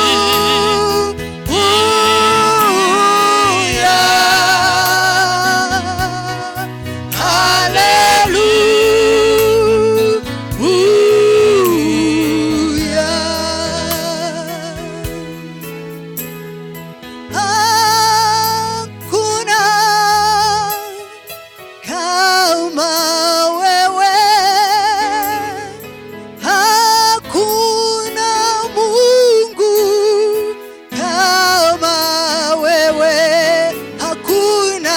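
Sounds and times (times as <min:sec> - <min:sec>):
steady bass line: 0:00.0 - 0:15.4
person singing with vibrato: 0:00.0 - 0:16.3, 0:17.0 - 0:34.9.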